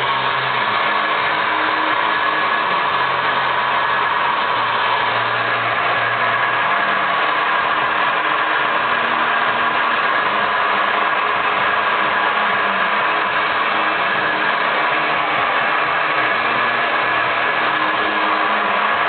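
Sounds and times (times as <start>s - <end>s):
hair dryer running: 0.0s - 19.0s.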